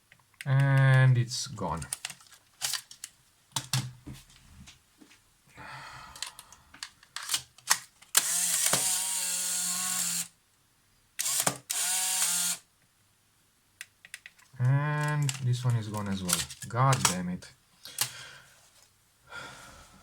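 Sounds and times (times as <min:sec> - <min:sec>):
camera shutter clicks: 0:08.1 - 0:10.3, 0:11.2 - 0:12.6
camera film motor whirring: 0:08.2 - 0:10.3, 0:11.2 - 0:12.6.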